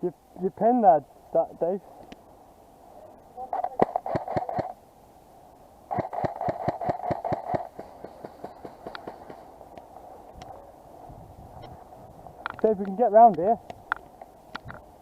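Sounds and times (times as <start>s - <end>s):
airsoft rifle gunfire: 3.6s - 4.8s, 5.9s - 9.5s.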